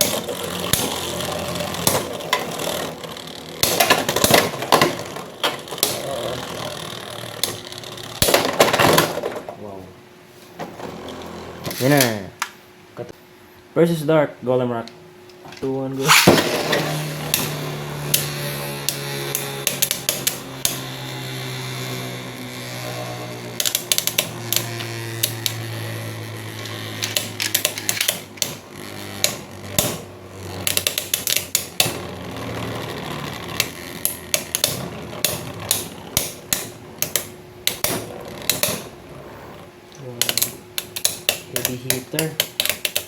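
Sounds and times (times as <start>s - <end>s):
spinning tops clacking: 0.0s - 9.4s, 16.0s - 39.0s
spinning tops whirring: 0.0s - 9.5s, 16.0s - 43.0s.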